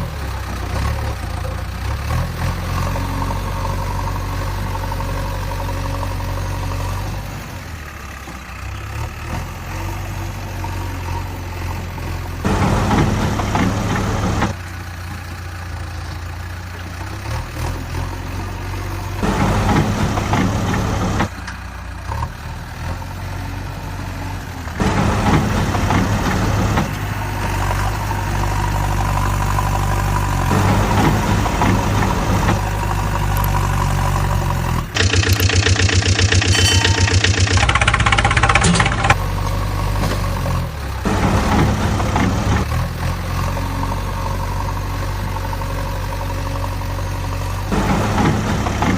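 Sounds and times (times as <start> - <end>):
vehicle engines idling: 0.0 - 48.9
evenly pulsing engine: 34.6 - 39.2.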